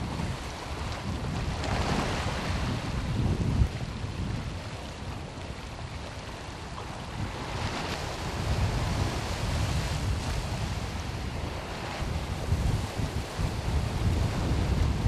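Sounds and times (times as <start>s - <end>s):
wind buffeting microphone: 0.0s - 15.0s
sea waves washing: 4.9s - 15.0s.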